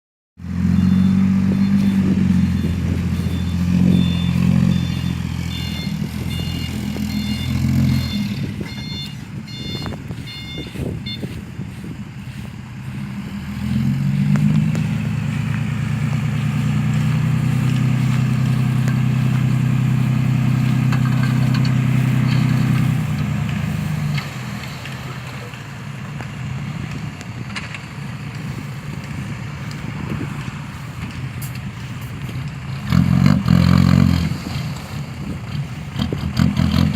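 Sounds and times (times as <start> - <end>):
dump truck engine running: 0.4 - 36.9
reversing alarm beeping: 0.6 - 11.5.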